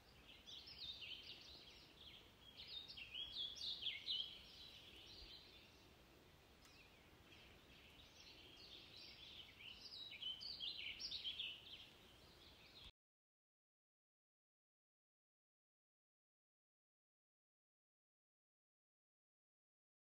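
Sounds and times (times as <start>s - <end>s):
bird chirps and trills: 0.0s - 5.9s, 6.6s - 12.9s.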